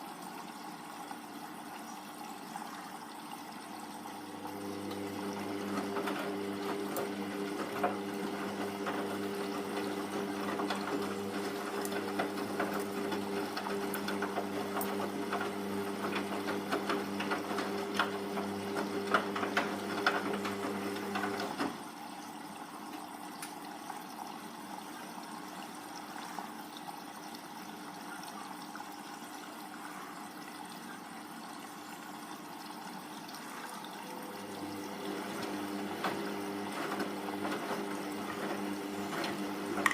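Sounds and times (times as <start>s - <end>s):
washing machine motor hum: 3.8s - 23.3s, 32.6s - 39.9s.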